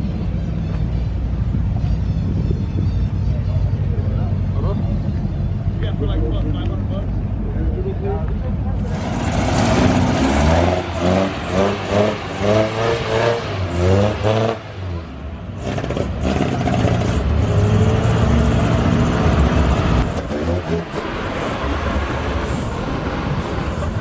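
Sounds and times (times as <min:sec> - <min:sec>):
car engine revving: 0:08.7 - 0:24.0.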